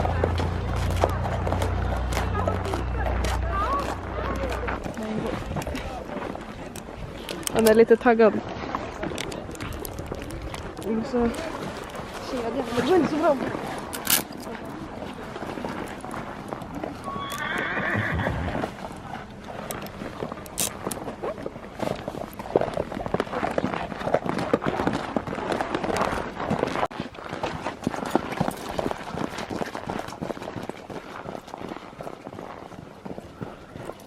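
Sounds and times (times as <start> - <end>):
hooves clopping and stamping: 0.0 - 34.0
horse whinnying: 17.0 - 18.7.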